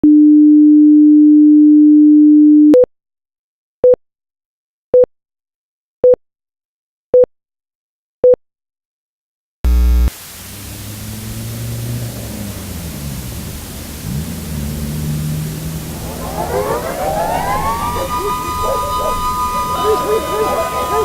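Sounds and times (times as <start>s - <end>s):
rising hiss: 10.2s - 21.0s
buzzy burst: 12.9s - 21.0s
steady low electronic tone: 13.6s - 21.0s.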